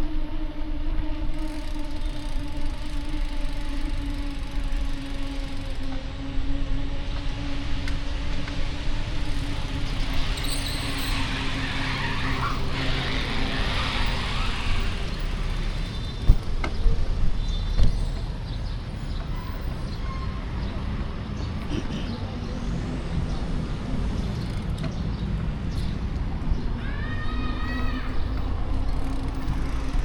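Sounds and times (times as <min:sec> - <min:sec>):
traffic engine drone: 0:00.0 - 0:30.0.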